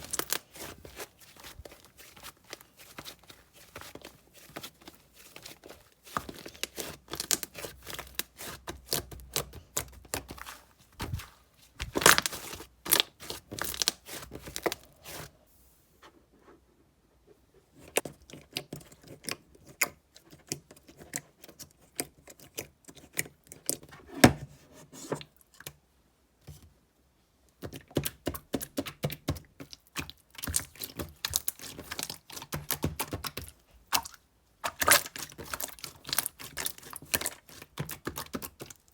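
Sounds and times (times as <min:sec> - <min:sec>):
slime squeezed crackling: 0:04.4 - 0:15.3, 0:30.4 - 0:38.7.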